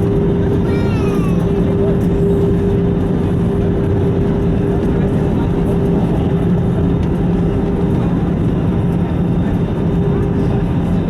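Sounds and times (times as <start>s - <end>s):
aircraft cabin engine drone: 0.0s - 11.0s.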